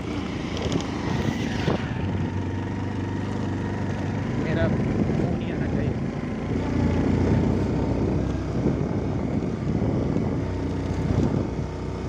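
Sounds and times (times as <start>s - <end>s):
vehicle engine running: 0.0s - 12.0s
wind noise on microphone: 0.0s - 12.0s.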